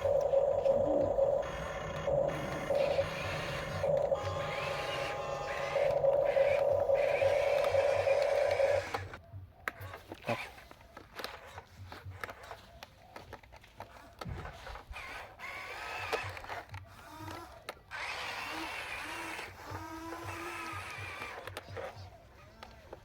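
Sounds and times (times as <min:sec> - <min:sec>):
small electric motor whining: 0:00.0 - 0:09.2.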